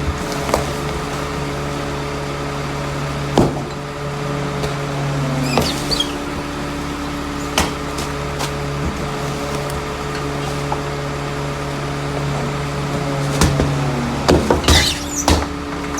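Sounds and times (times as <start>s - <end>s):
garbage truck humming: 0.0s - 15.9s
high squeak: 5.3s - 6.4s, 13.1s - 15.9s
sharp metallic clunks: 13.3s - 15.9s.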